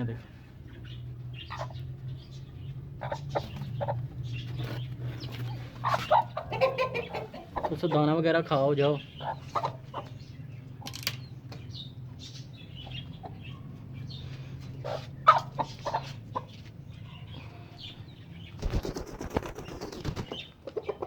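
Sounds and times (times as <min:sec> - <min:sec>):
birds clucking: 0:00.0 - 0:21.0
wings flapping: 0:18.6 - 0:20.8.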